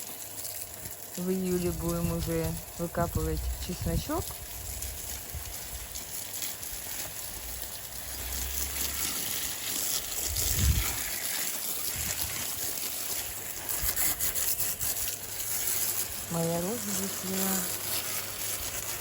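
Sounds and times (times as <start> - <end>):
water spraying from garden hose: 0.0 - 19.0.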